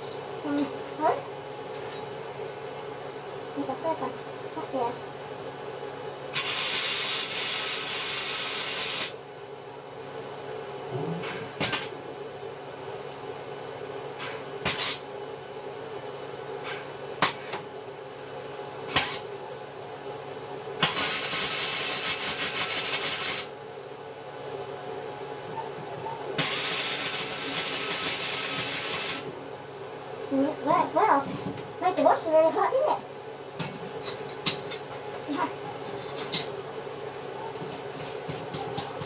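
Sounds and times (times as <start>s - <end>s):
welding arc crackling: 6.4s - 9.1s, 20.8s - 23.5s, 26.4s - 29.3s
welder hum: 26.4s - 29.3s.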